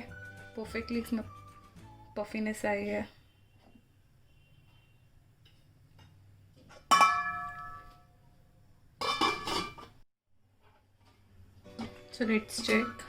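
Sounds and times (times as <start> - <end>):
metal cookware clinking: 5.9 - 8.1, 9.0 - 10.0, 11.8 - 13.0.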